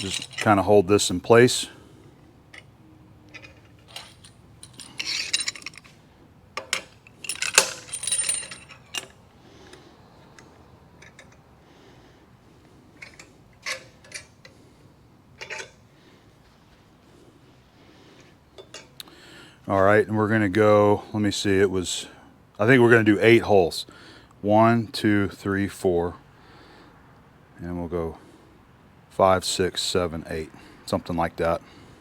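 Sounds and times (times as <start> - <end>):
metal clamps clinking: 0.0 - 1.5, 3.3 - 6.0, 6.6 - 9.8, 13.0 - 14.6, 15.4 - 15.8.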